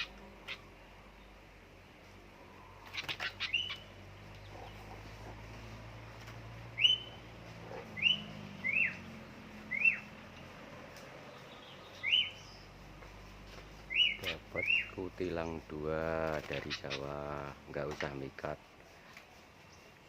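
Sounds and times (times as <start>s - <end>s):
bird chirps: 2.5s - 5.4s, 6.6s - 18.2s.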